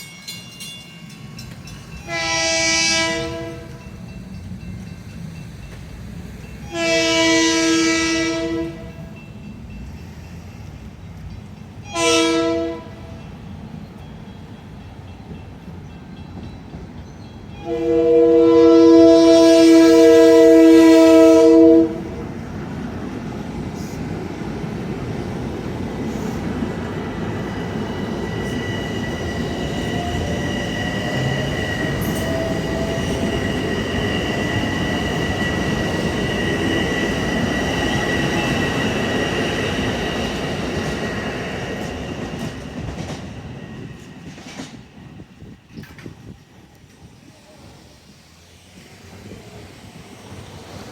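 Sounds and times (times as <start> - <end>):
train wheels rumbling on rails: 0.0 - 50.9
train horn blast: 2.0 - 3.9, 6.6 - 9.1, 11.8 - 13.2, 17.6 - 22.3.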